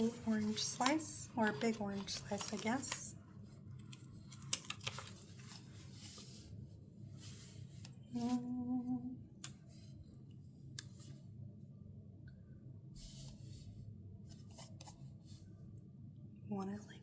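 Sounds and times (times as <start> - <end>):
paper rustling: 0.0 - 3.1, 3.8 - 6.4
woman humming: 8.1 - 9.2.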